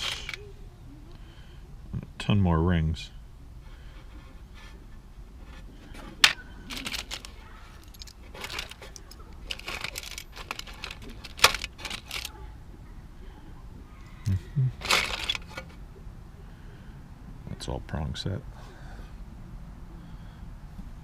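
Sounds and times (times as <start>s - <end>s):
rustling: 0.0s - 0.5s, 3.6s - 12.4s, 14.0s - 15.8s
jewelry clinking and rattling: 6.0s - 12.4s, 14.8s - 15.6s.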